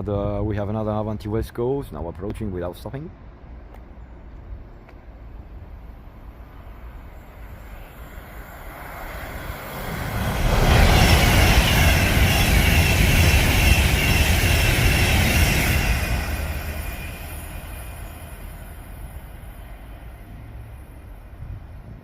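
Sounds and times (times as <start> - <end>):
train passing at speed: 3.0 - 22.0
faint high whine: 4.0 - 22.0.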